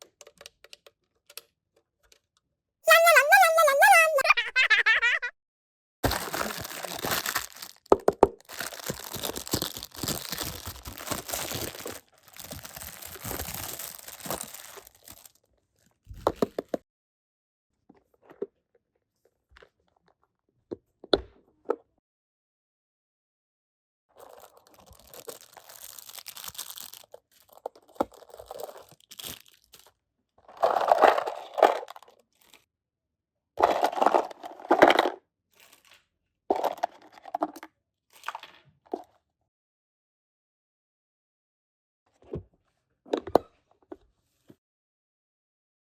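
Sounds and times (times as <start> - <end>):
plastic packaging tearing and crinkling: 6.0 - 15.3, 24.5 - 27.0, 29.0 - 29.8.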